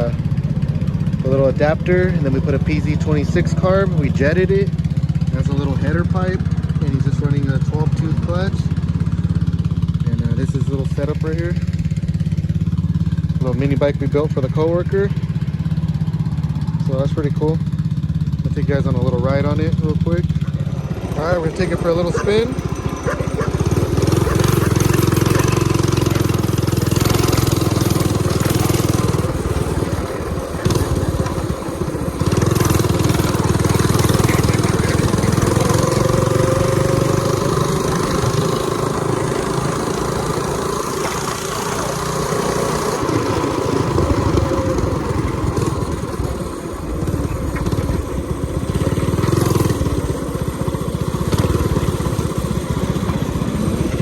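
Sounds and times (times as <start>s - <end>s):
minibike engine revving: 0.0s - 54.0s.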